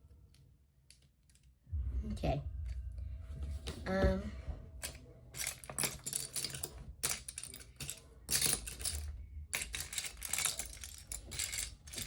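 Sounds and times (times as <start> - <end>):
plastic bricks clicking and rattling: 4.8 - 12.0.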